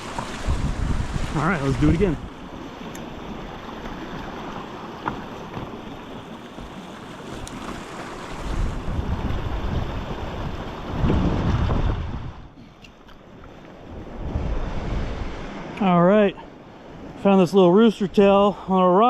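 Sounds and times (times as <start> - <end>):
wind buffeting microphone: 0.0 - 4.5, 7.4 - 12.6, 13.8 - 15.8
river water running: 0.0 - 19.0.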